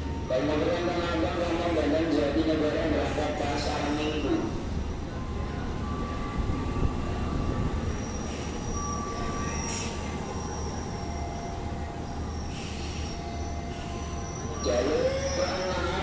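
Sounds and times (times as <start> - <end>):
train wheels squealing: 6.0 - 16.0.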